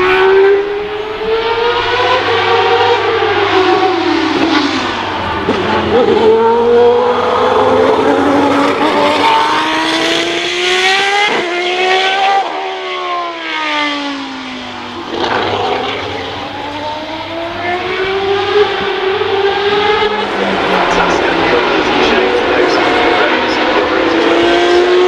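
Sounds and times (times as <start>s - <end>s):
racing car engines: 0.0s - 25.0s.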